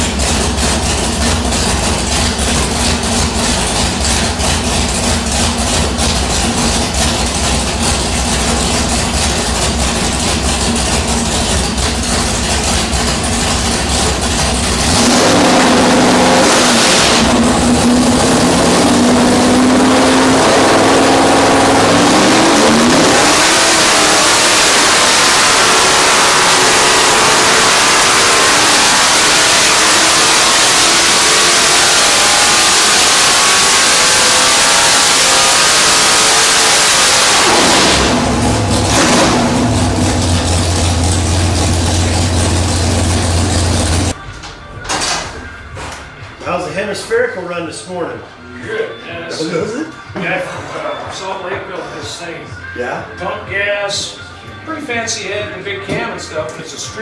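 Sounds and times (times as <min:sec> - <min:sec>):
engine revving on dyno: 0:00.0 - 0:44.2.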